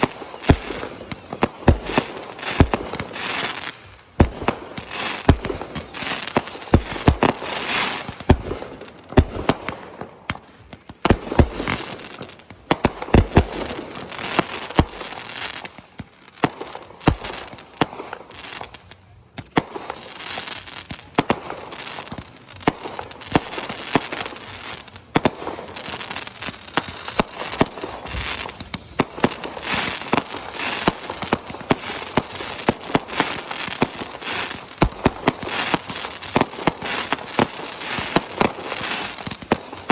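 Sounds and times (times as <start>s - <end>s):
firework shells bursting: 0.0s - 7.4s, 26.8s - 39.9s
firework whistles falling in pitch: 0.0s - 8.2s, 26.8s - 39.9s
fireworks crackling: 0.0s - 39.9s.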